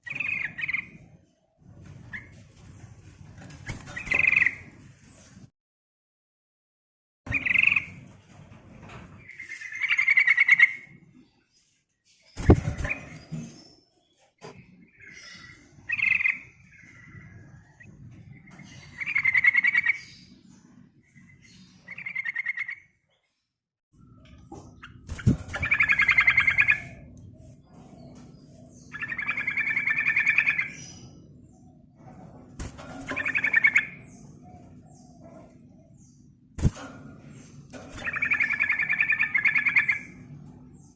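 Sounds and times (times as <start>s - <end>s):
bird chattering song: 0.0s - 1.1s, 3.8s - 4.6s, 7.3s - 8.0s, 9.2s - 11.0s, 14.8s - 23.2s, 24.0s - 32.0s, 32.7s - 36.5s, 37.2s - 40.9s.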